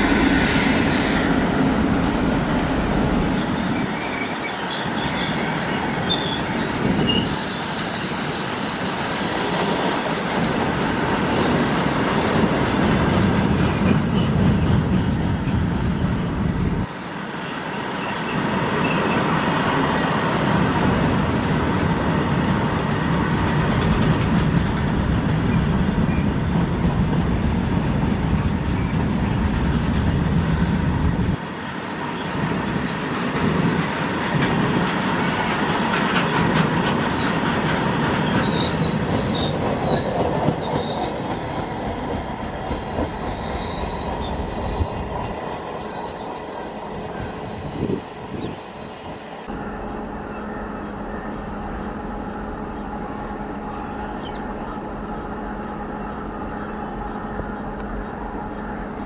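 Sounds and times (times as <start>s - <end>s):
electric locomotive humming: 0.0s - 59.0s
freight wagon wheels squealing: 3.4s - 10.9s, 35.2s - 45.1s, 47.4s - 49.3s.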